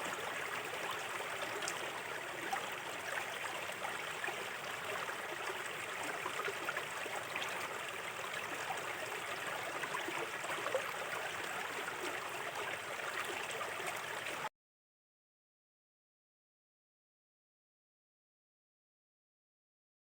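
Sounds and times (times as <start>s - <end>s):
river flowing over stones: 0.0s - 14.5s.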